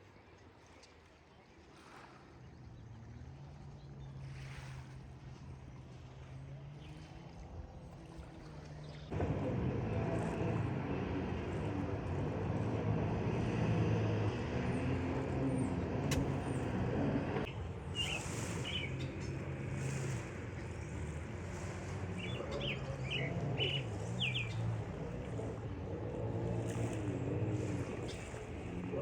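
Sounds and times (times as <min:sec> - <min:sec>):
motor humming: 0:09.1 - 0:17.5.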